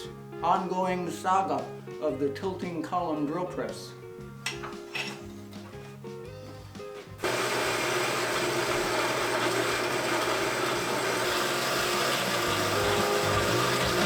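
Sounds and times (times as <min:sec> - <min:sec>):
power tool motor running: 0:07.2 - 0:14.0.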